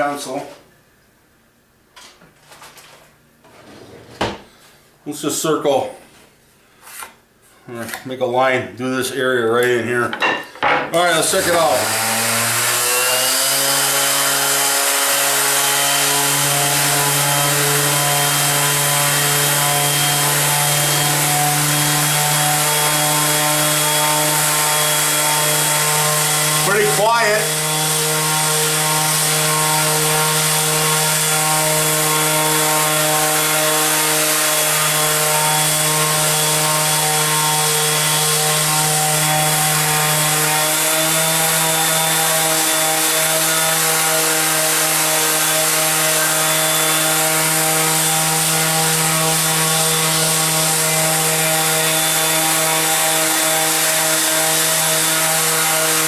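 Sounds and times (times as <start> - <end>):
orbital sander motor hum: 11.2 - 56.0.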